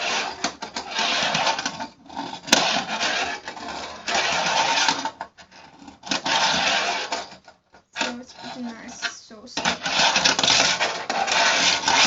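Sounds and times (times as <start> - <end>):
fingerboard wheels rolling: 0.0 - 12.0.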